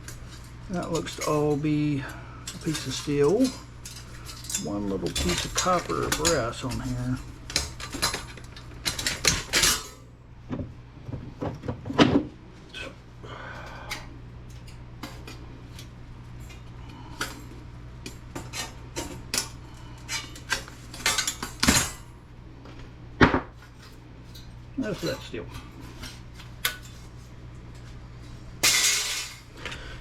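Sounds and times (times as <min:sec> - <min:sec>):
metal parts clinking: 0:02.5 - 0:10.0.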